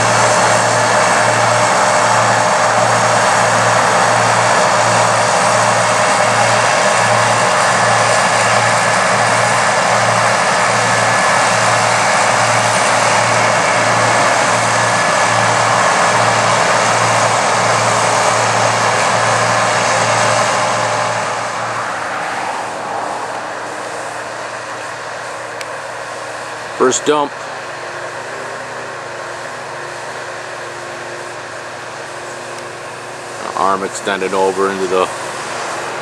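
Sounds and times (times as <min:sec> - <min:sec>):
combine harvester running: 0:00.0 - 0:36.0.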